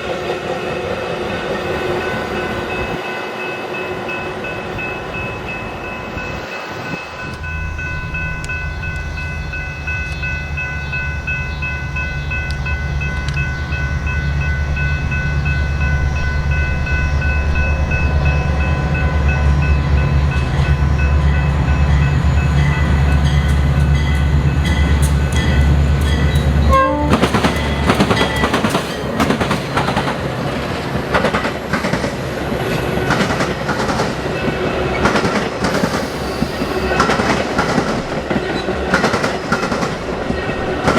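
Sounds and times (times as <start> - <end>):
train wheels clattering on rails: 6.9 - 40.9
diesel engine rumble: 7.0 - 23.8
locomotive air horn: 26.7 - 27.2.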